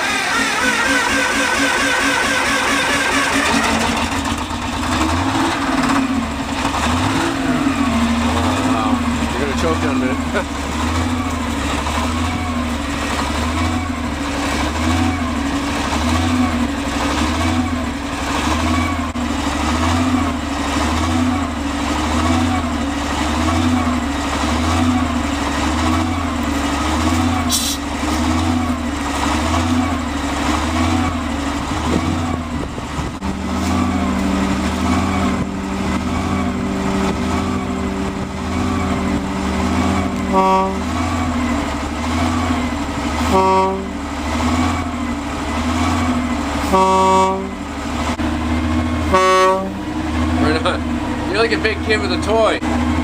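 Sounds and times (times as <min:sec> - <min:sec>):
locomotive engine idling: 0:00.0 - 0:53.0
locomotive horn toots: 0:33.2 - 0:41.4, 0:43.2 - 0:44.0, 0:46.6 - 0:47.7, 0:49.0 - 0:50.0.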